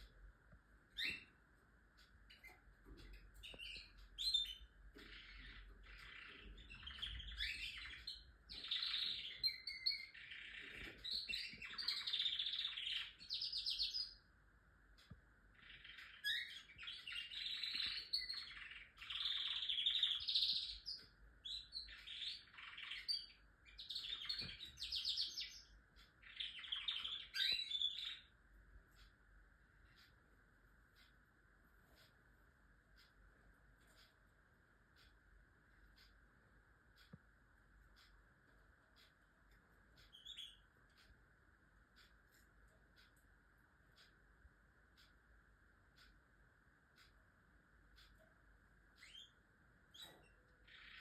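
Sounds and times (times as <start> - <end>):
canary singing trills: 0.8 - 14.4, 15.0 - 29.2, 37.8 - 44.2, 47.8 - 51.0.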